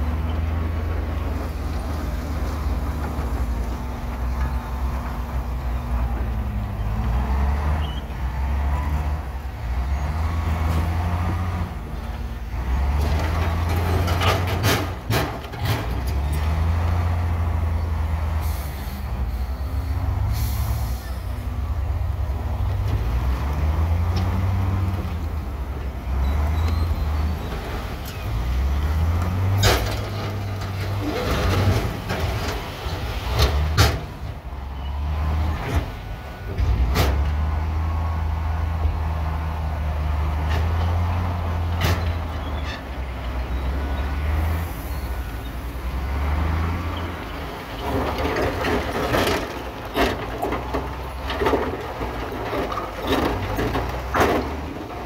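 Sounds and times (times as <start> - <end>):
diesel machinery engine under load: 0.0 - 55.0.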